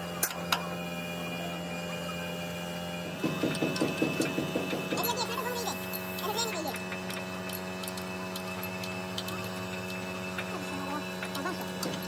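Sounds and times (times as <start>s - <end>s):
steady low hum: 0.0s - 12.0s
rapid mechanical clicking: 3.1s - 12.0s.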